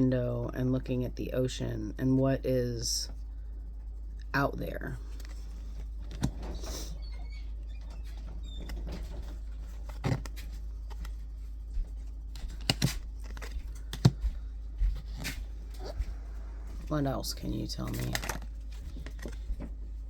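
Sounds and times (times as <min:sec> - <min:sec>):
steady low hum: 0:00.0 - 0:20.0
handling knocks and clicks: 0:05.1 - 0:06.7, 0:07.4 - 0:16.2, 0:16.8 - 0:19.8.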